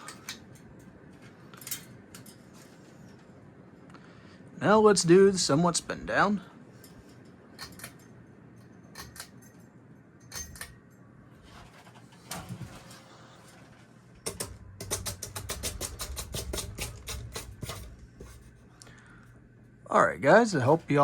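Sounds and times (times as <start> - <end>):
ceiling fan whirring: 0.0 - 21.0
clicking and rattling: 14.2 - 18.4.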